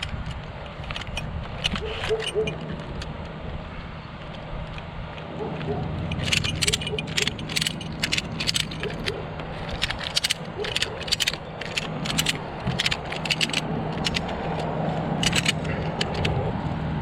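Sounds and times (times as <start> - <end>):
ratchet strap clicking: 0.0 - 3.1, 6.0 - 16.4
truck engine humming: 0.0 - 17.0.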